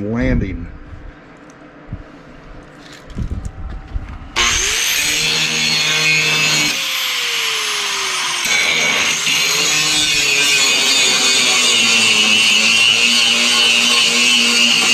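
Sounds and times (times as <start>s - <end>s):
angle grinder grinding steel: 4.4s - 14.9s.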